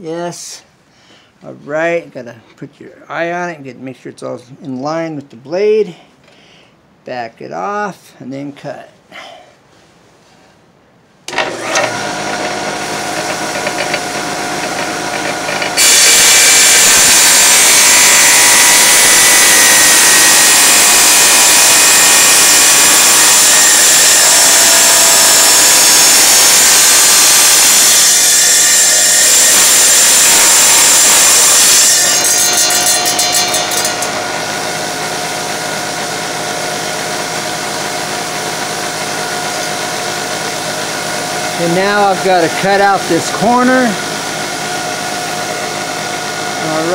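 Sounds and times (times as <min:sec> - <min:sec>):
tile saw cutting tile: 0:11.3 - 0:46.9.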